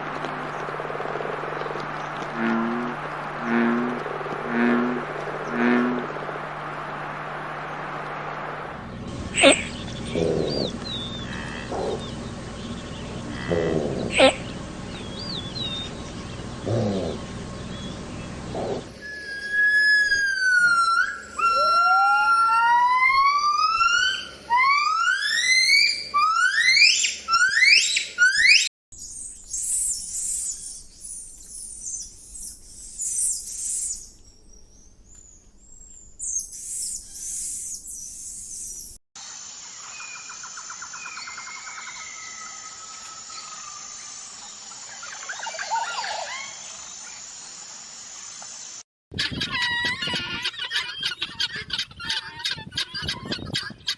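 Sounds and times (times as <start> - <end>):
rising whistled bird calls: 16.6 - 39.0
high bird chirping: 26.8 - 39.0.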